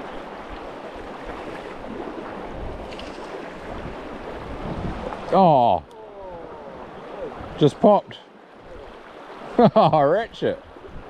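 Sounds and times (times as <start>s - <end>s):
river water running: 0.0s - 11.0s
wind noise on microphone: 1.3s - 5.3s, 10.6s - 11.0s.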